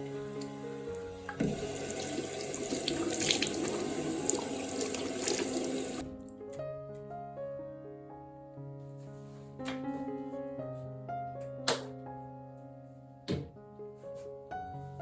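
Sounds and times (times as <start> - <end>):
water running from tap into sink: 0.0 - 6.1
soft piano music: 0.0 - 15.0.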